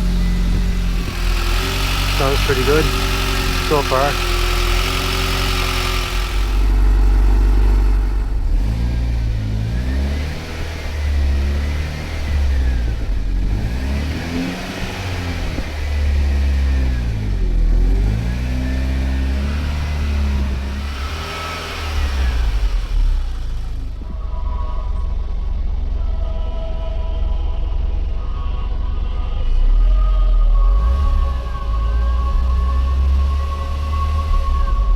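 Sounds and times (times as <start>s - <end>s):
car engine revving: 0.0s - 24.3s, 29.6s - 34.9s.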